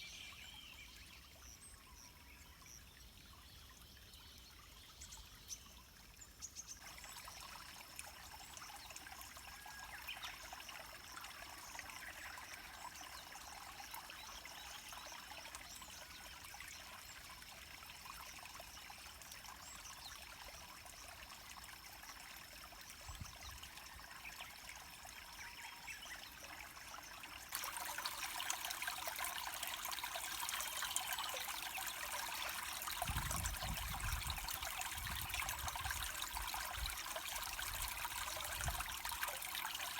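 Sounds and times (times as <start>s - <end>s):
river water flowing: 20.2s - 39.9s.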